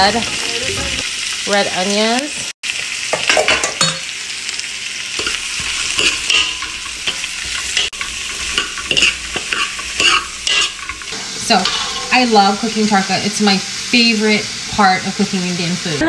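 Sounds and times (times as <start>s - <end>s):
onion sizzling in hot oil: 0.0s - 16.0s
spatula scraping a wok: 5.2s - 13.1s.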